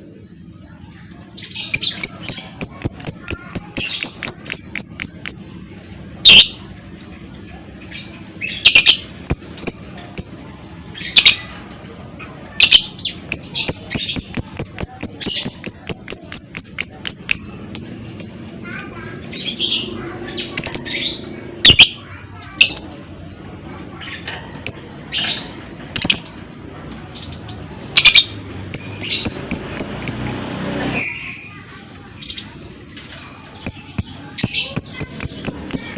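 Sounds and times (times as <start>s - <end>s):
lovebirds chirping: 27.2s - 32.6s.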